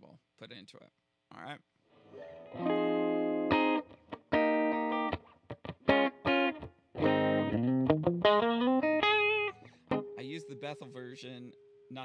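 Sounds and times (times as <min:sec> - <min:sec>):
electric guitar chords and notes: 0:02.0 - 0:10.4.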